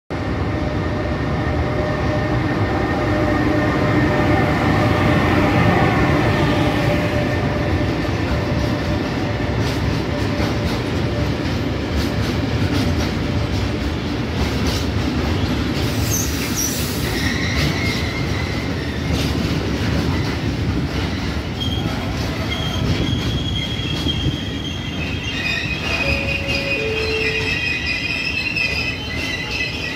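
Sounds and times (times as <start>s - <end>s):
train wheels rumbling on rails: 0.1s - 29.9s
wheel squeals: 21.1s - 29.9s
locomotive whining: 23.4s - 29.9s.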